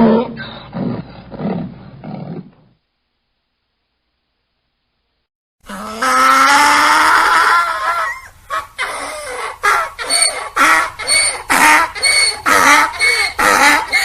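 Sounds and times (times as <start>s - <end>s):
donkey braying: 5.7s - 14.0s.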